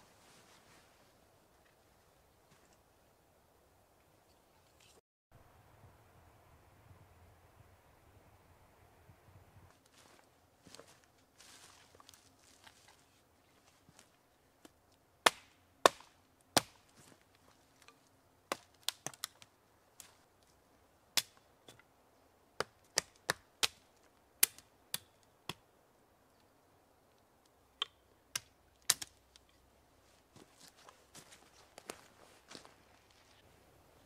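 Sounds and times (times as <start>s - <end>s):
wood being chopped: 15.3s - 17.1s.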